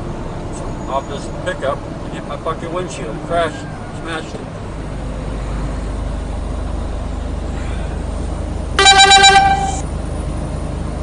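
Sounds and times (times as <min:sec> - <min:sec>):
car horn pulses: 0:08.8 - 0:09.8.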